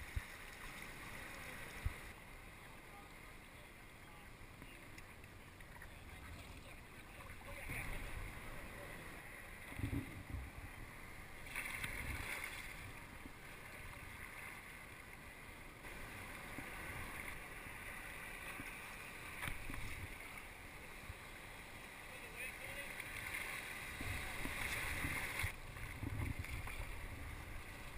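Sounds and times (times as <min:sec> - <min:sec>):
water splashing around kayak: 0:00.0 - 0:27.9
wind gusts on microphone: 0:23.8 - 0:27.9.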